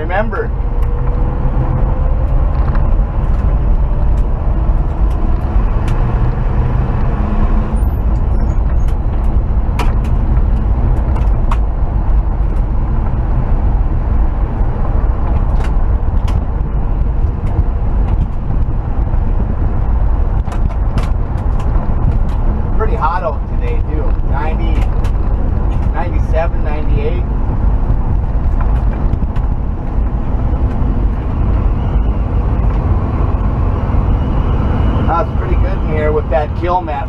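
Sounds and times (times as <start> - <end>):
engine and road rumble: 0.0 - 37.0.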